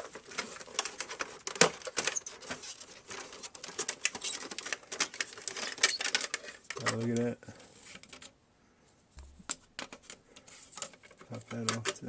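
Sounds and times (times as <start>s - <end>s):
clicks taps and scrapes of parts: 9.2s - 12.0s.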